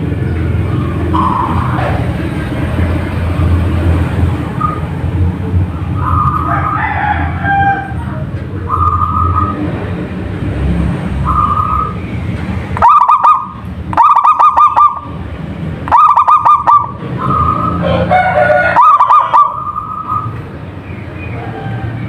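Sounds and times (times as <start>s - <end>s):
dove cooing: 12.8s - 15.1s, 15.9s - 20.3s.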